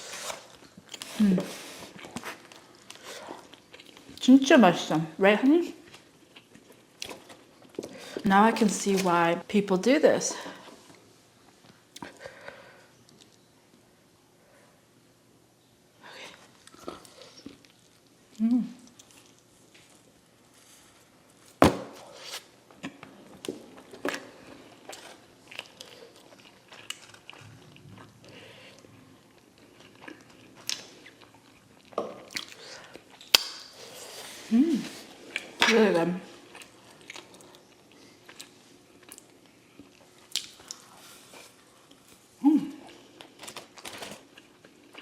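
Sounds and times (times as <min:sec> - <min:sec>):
person humming mm: 0:18.4 - 0:18.8, 0:34.4 - 0:35.0, 0:42.4 - 0:42.9
chewing food: 0:22.8 - 0:33.4, 0:36.3 - 0:42.2, 0:42.8 - 0:45.0.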